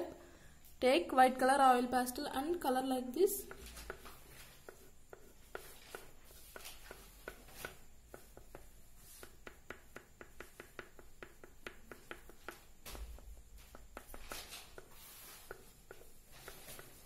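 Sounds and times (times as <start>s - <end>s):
oil pastel scratching on paper: 3.4s - 12.4s, 14.0s - 17.0s.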